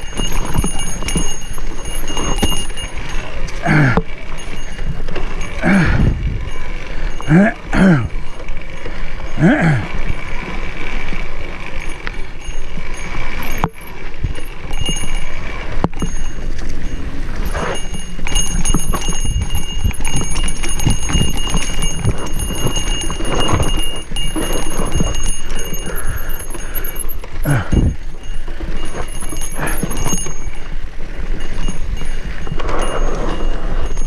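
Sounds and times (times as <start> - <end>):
wind buffeting microphone: 0.0 - 8.2, 16.8 - 26.9, 27.5 - 34.0
bike rattling and knocking: 0.0 - 34.0.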